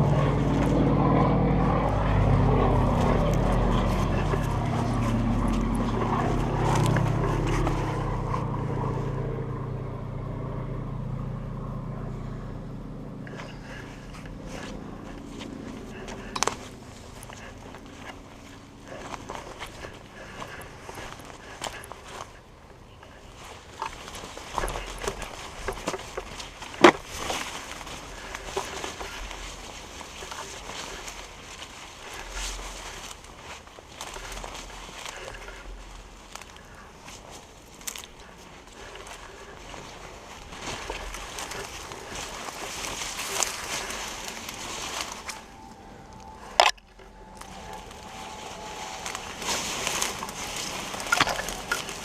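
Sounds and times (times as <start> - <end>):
footsteps on dry leaves: 0.0 - 52.0
twig cracking: 23.0 - 52.0.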